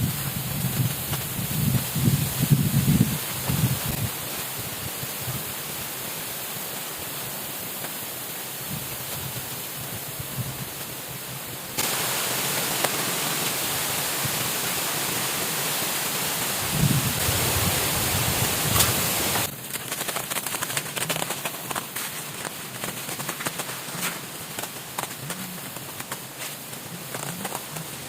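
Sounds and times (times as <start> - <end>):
water rushing: 10.8 - 19.5.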